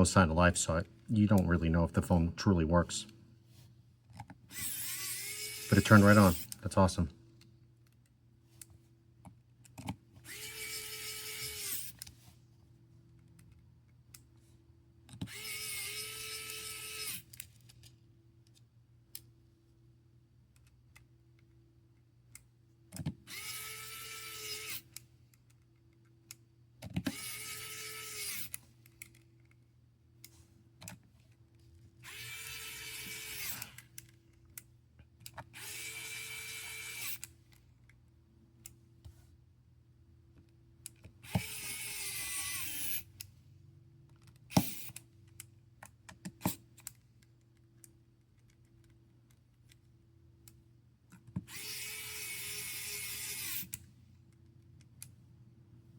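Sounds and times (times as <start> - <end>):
electric screwdriver whine: 4.5 - 6.6, 10.3 - 12.0, 15.3 - 17.3, 23.3 - 24.9, 27.1 - 28.6, 32.0 - 33.8, 35.6 - 37.2, 41.2 - 43.1, 44.5 - 45.0, 51.4 - 53.8.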